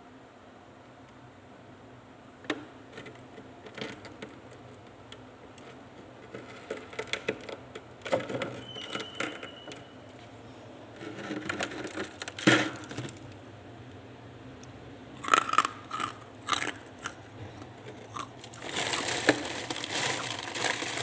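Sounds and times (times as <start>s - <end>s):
ice clicking and crackling: 11.1s - 13.4s, 15.2s - 17.2s, 17.8s - 21.0s.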